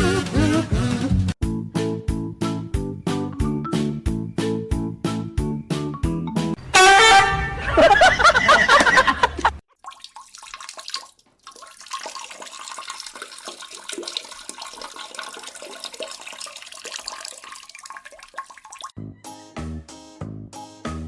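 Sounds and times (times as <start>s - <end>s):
water running and splashing: 9.7s - 18.9s.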